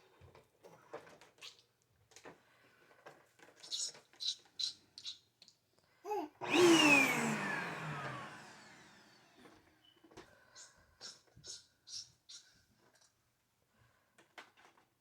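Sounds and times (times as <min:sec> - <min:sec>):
vacuum cleaner motor winding down: 0:06.4 - 0:09.7.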